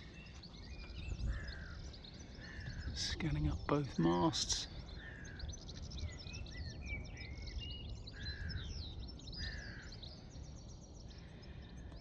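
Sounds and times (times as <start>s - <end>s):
harsh bird calls: 0.0s - 5.6s
birds chirping and twittering: 0.0s - 12.0s.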